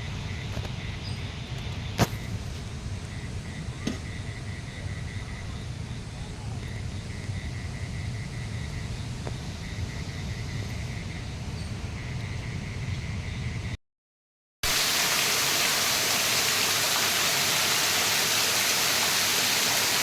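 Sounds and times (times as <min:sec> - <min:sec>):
insect chirping: 0:00.0 - 0:13.8.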